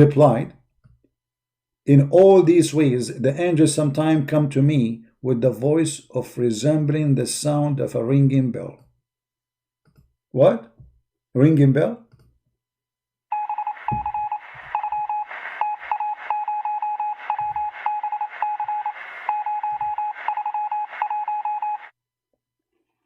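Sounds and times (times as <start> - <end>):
morse code beeping tone: 13.3 - 21.9
radio static: 13.4 - 21.9.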